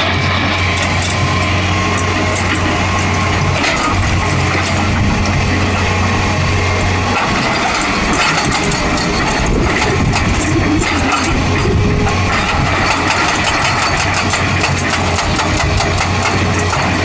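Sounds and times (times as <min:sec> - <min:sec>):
diesel engine running: 0:00.0 - 0:17.0
metallic clatter and knocks: 0:12.2 - 0:16.9.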